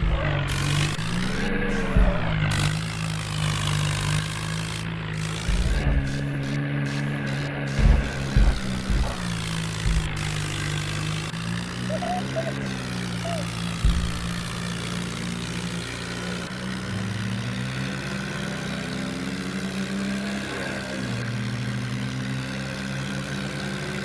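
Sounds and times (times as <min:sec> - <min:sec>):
low thumps: 0:00.0 - 0:11.8, 0:12.5 - 0:14.9
tractor diesel engine running: 0:00.0 - 0:24.0.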